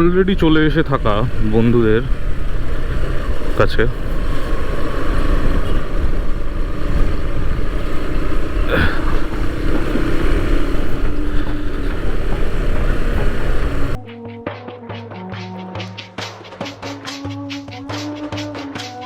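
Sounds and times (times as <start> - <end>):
wind rush on microphone: 0.0 - 14.0
motorcycle engine running: 0.0 - 19.0.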